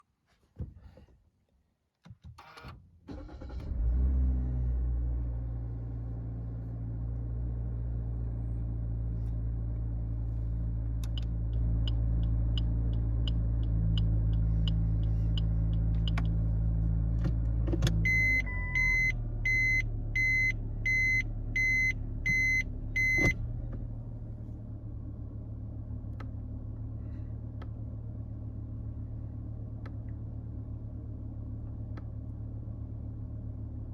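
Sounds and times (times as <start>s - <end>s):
car engine starting and idling: 2.4s - 33.9s
turn signal clicking: 11.0s - 16.5s
reverse warning beeps: 18.0s - 23.4s.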